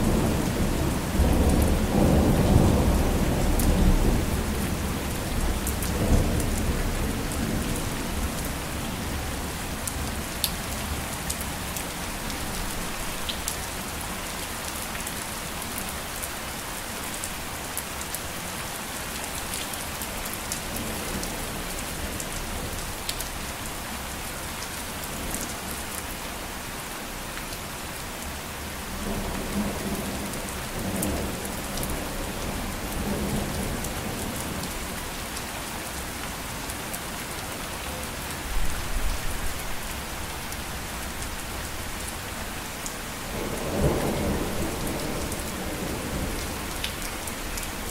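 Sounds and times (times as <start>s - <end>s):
steady rain: 0.0s - 47.9s
thunder rumbling: 43.3s - 46.7s.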